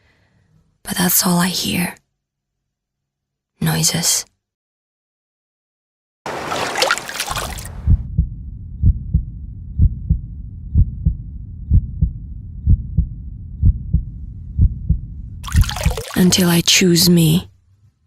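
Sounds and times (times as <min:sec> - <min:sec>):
heartbeat thumps: 0:07.6 - 0:16.1
low rumbling bed: 0:07.7 - 0:15.5.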